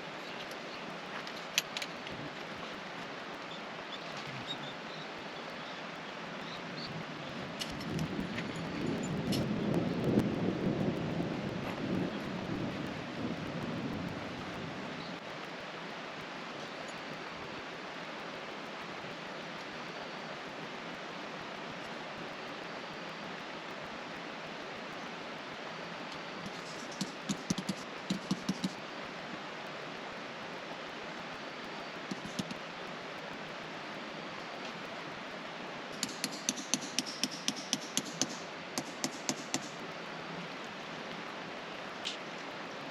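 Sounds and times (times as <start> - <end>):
river rushing: 0.0 - 42.9
sharp clicks: 26.4 - 28.8, 32.1 - 32.6, 36.0 - 39.8.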